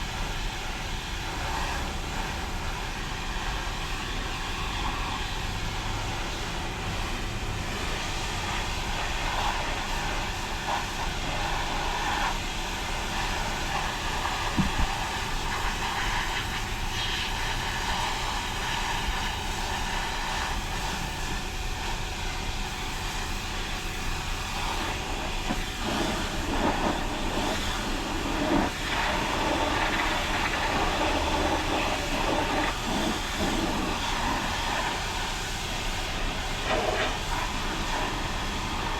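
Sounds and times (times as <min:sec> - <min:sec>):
car wash spray and machinery: 0:00.0 - 0:38.9
brief knock: 0:14.6 - 0:15.0.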